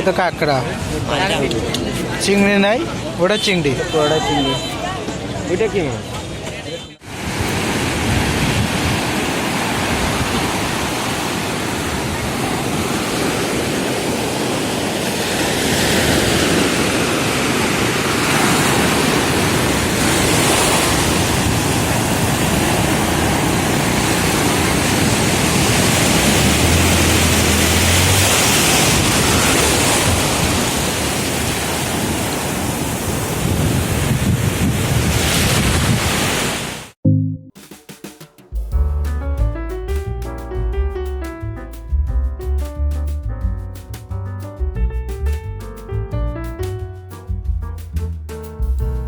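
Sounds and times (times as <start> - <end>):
sea surf rushing onto beach: 7.0 - 37.0
wind buffeting microphone: 7.2 - 15.3, 16.2 - 36.3.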